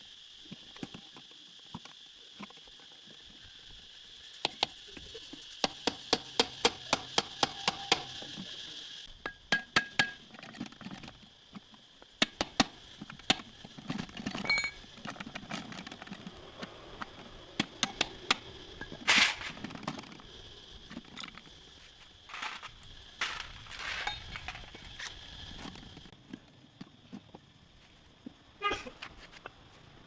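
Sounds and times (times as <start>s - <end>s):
metal tools clinking: 14.2s - 14.9s, 22.3s - 24.9s
scraping noises: 21.8s - 26.2s.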